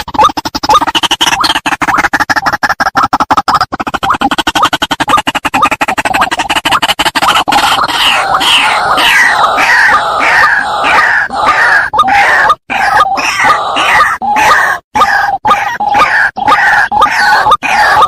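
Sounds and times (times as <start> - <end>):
bird harsh calls: 4.3 - 18.0.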